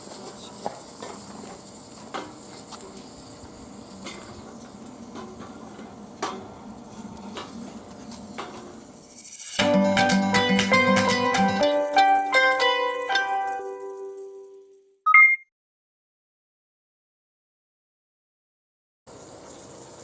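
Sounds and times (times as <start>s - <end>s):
faint hiss: 0.0s - 5.6s, 19.1s - 20.0s.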